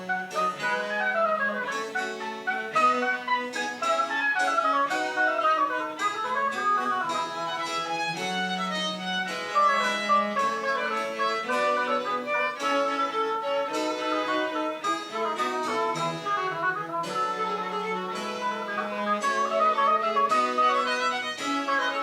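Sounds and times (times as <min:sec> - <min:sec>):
baroque chamber ensemble: 0:00.0 - 0:22.0
violin melody: 0:00.0 - 0:22.0.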